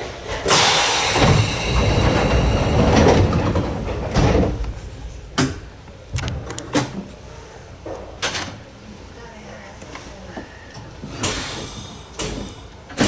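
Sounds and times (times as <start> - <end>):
train doors clunking shut: 0.0 - 7.2, 10.8 - 13.0.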